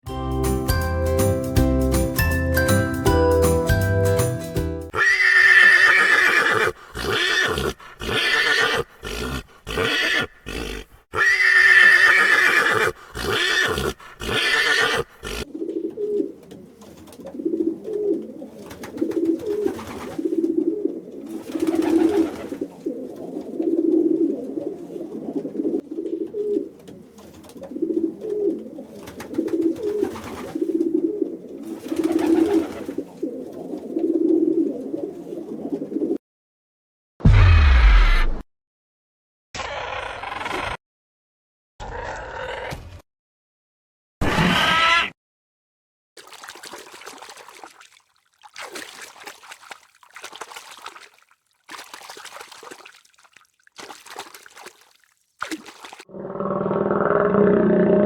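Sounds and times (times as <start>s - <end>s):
loud high animal cries: 4.9s - 15.5s, 44.3s - 45.2s
birds cooing: 11.5s - 36.2s.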